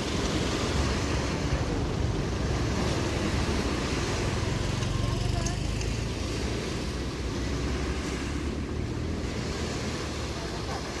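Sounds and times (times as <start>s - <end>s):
sea waves washing onto beach: 0.0s - 11.0s.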